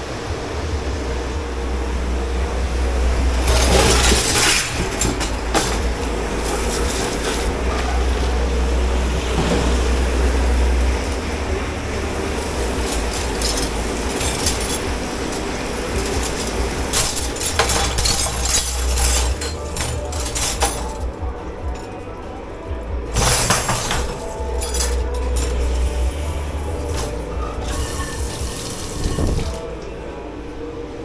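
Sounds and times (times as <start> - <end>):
low machine hum: 0.0 - 31.0
dishes clattering: 3.3 - 22.1, 23.1 - 29.9
water spraying: 25.2 - 29.7.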